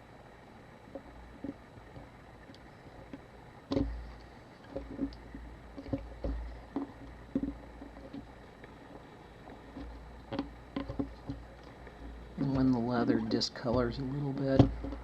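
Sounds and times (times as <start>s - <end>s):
light knocks and clicks: 12.0s - 15.0s.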